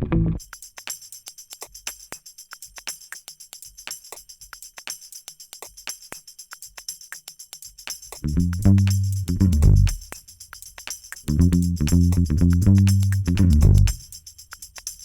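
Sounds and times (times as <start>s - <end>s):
faint low bass line: 0.0s - 0.4s, 8.2s - 10.0s, 11.3s - 14.0s
light high percussion rhythm: 0.4s - 15.0s.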